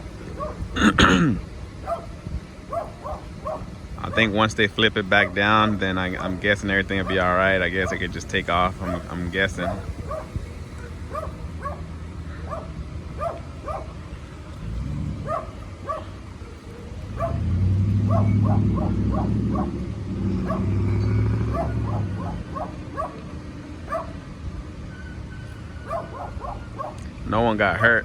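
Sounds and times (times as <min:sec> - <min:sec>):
vehicle engine humming: 0:00.0 - 0:28.0
small dog yapping: 0:08.8 - 0:13.9, 0:15.2 - 0:19.8, 0:20.4 - 0:20.7, 0:21.5 - 0:23.2, 0:23.9 - 0:24.2, 0:25.9 - 0:27.0.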